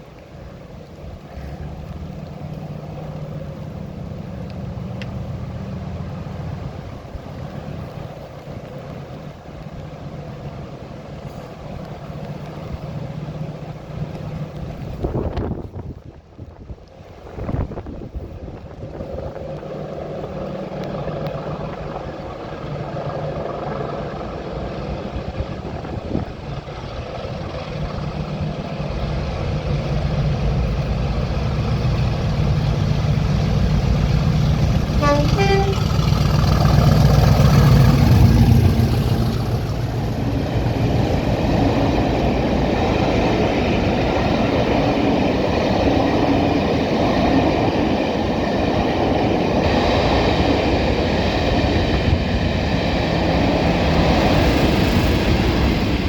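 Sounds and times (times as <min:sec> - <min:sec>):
diesel locomotive engine working hard: 0:00.0 - 0:56.0
train coaches rolling by: 0:00.0 - 0:56.0
train horn: 0:34.8 - 0:36.7.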